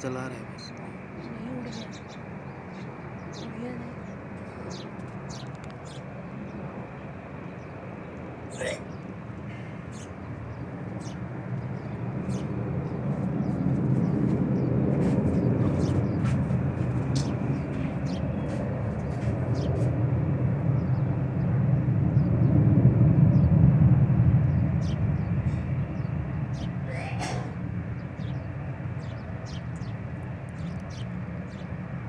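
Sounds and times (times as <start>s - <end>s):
faint clicks: 5.4s - 5.8s
jet engines rumbling in cabin: 8.3s - 31.6s.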